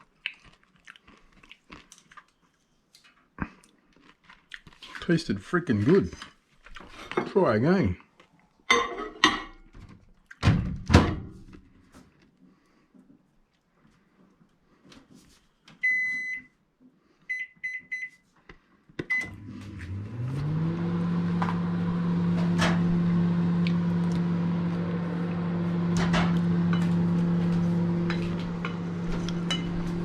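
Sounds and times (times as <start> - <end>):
microwave keypad beeping: 15.8 - 16.5, 17.3 - 18.2, 19.1 - 19.4
microwave humming: 19.0 - 30.0.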